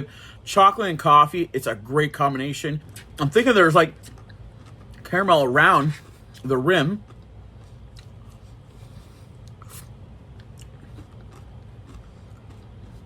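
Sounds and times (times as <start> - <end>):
steady low hum: 0.0 - 13.0
person chewing: 2.8 - 13.0.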